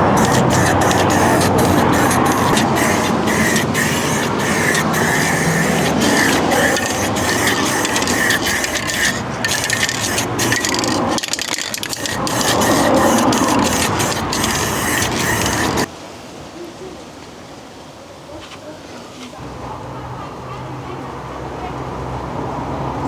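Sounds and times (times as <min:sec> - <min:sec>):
sandpaper rasping on metal panel: 0:00.0 - 0:15.9.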